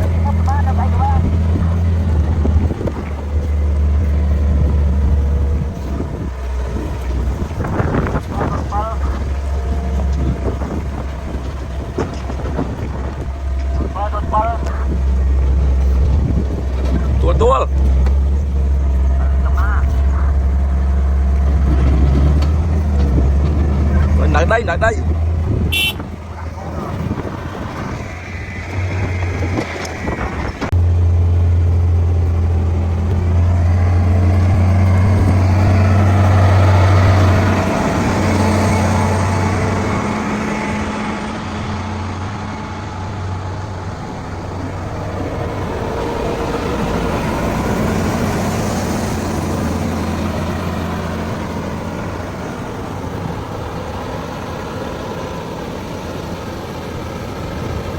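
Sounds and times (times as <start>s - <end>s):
heavy machinery engine humming: 0.0s - 57.9s.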